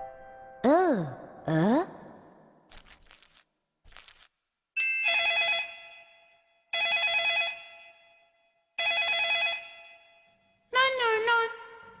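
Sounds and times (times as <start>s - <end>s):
telephone ringing: 5.0s - 8.2s, 8.8s - 10.3s.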